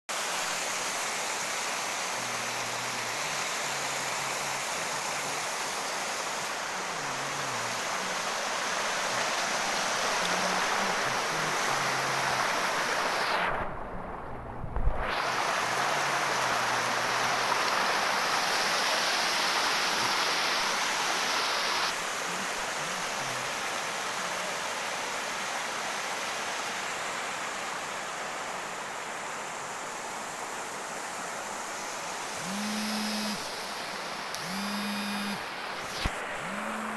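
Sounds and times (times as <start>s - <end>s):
heavy rain falling: 2.2s - 24.7s.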